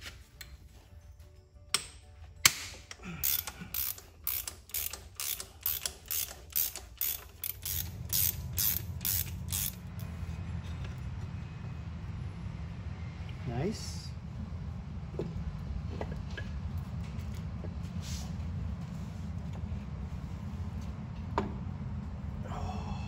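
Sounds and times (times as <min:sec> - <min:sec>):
ratchet wrench clicking: 0:02.9 - 0:10.1
low hum: 0:02.9 - 0:23.0.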